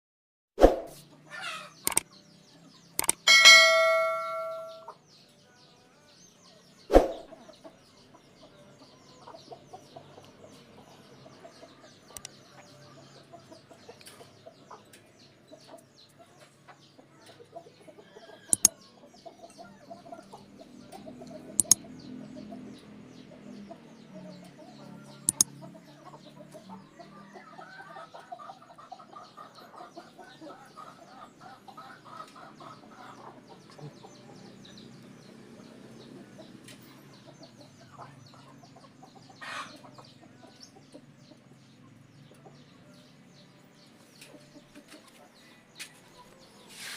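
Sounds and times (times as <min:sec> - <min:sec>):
sharp clicks: 0:01.9 - 0:02.1, 0:03.0 - 0:04.8, 0:18.5 - 0:18.7, 0:21.6 - 0:21.8, 0:25.3 - 0:25.5.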